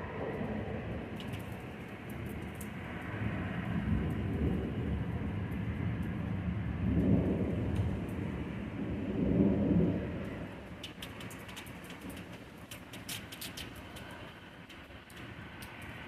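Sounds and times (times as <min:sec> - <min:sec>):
rolling thunder: 0:03.3 - 0:10.7.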